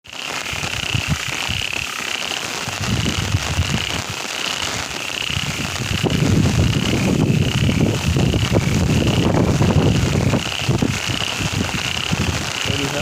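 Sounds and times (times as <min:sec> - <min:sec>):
steady rain falling: 0:00.0 - 0:13.0
low rumbling: 0:05.4 - 0:13.0.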